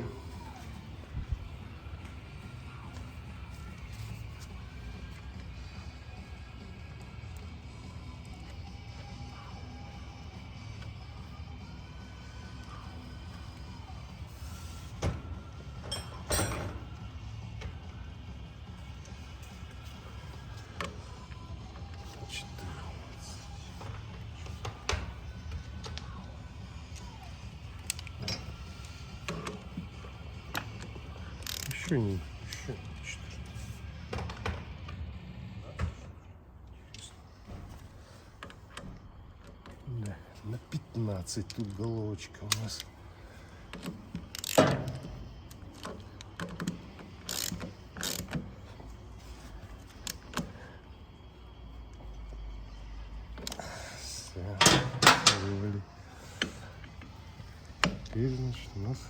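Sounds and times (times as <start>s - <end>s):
low background hum: 0.0s - 59.0s
socket wrench clicking on metal: 43.8s - 45.1s.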